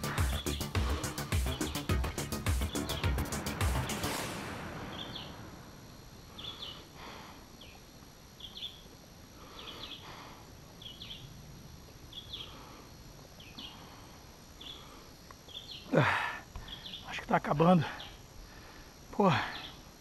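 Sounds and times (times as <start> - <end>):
music track: 0.0 - 5.8
bird chirping: 0.0 - 10.1, 10.7 - 11.4, 12.0 - 12.7, 13.4 - 14.0, 14.6 - 15.9, 16.6 - 18.2.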